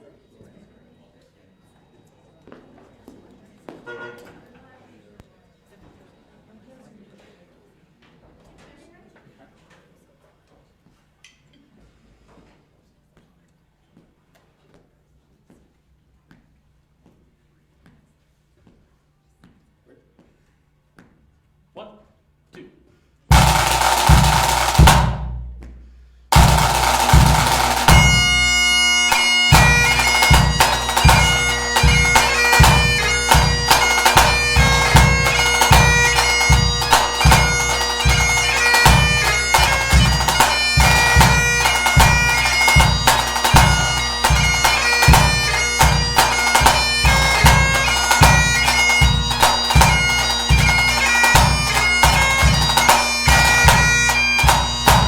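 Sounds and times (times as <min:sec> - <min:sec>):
bagpipes playing a tune: 0:23.3 - 0:25.2, 0:26.3 - 0:55.0
bass drum beating: 0:23.3 - 0:55.0.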